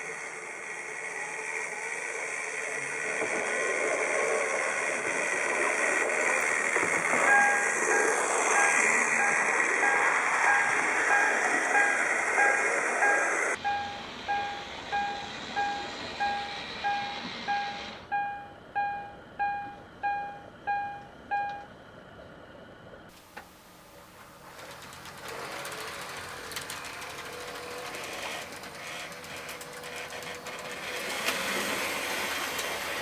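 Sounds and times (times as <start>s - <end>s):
rushing hiss of model trains: 0.0s - 13.6s, 24.4s - 33.0s
model railway warning bell dinging: 7.0s - 21.7s.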